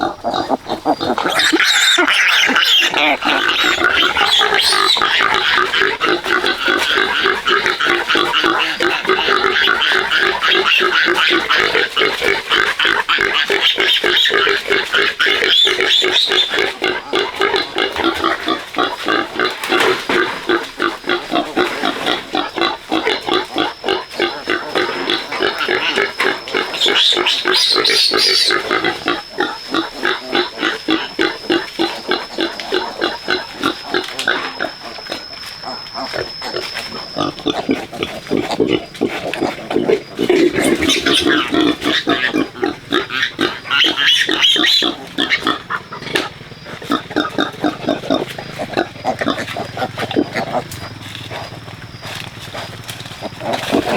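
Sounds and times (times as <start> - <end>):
pigs grunting and squealing: 0.0 - 53.9.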